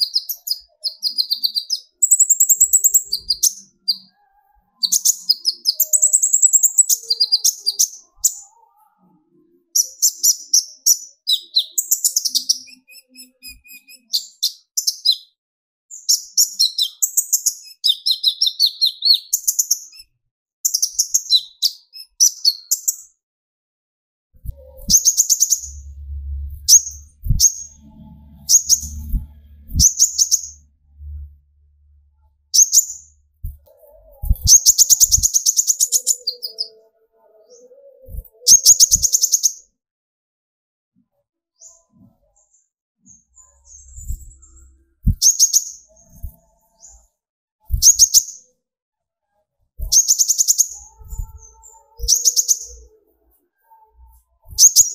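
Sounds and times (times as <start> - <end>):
low thumps: 24.4 - 32.4
sunbird chattering song: 24.6 - 31.2.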